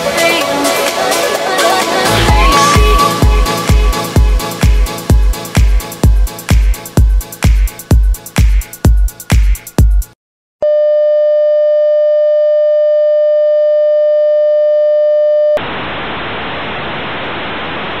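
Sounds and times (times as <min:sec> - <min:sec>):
dance music beat: 0:00.2 - 0:10.1.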